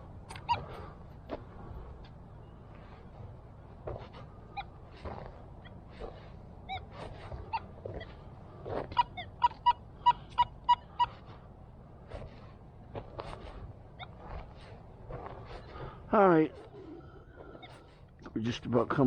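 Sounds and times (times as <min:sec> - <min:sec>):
metal detector beeping: 0:00.3 - 0:00.8, 0:08.8 - 0:11.2
knocks and scuffs: 0:03.8 - 0:09.1, 0:12.1 - 0:16.0.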